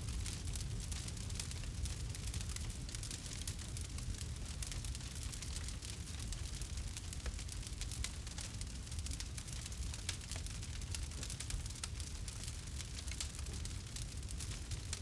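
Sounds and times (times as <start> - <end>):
campfire crackling and popping: 0.1 - 15.0.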